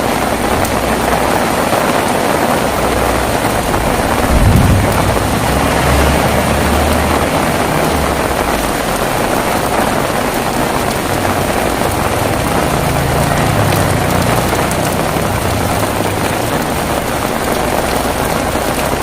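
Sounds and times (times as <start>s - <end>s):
heavy rain falling: 0.0s - 19.0s
low rumble: 2.6s - 9.7s.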